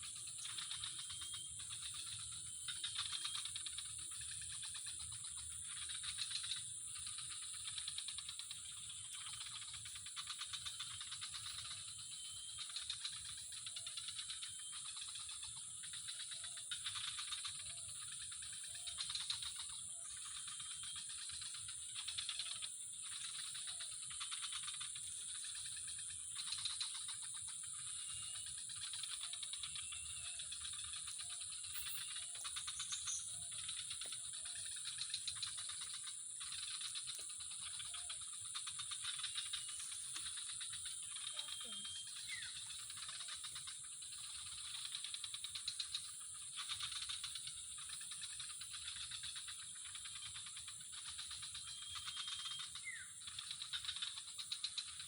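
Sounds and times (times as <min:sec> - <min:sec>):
high-pitched animal drone: 0:40.8 - 0:42.3.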